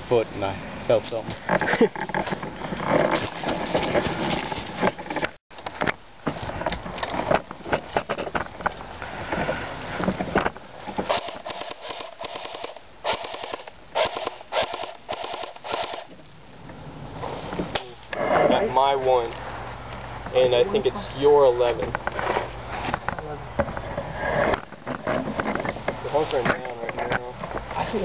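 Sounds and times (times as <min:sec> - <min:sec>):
rustling scraping and clicking: 0:00.3 - 0:16.2, 0:21.6 - 0:28.0.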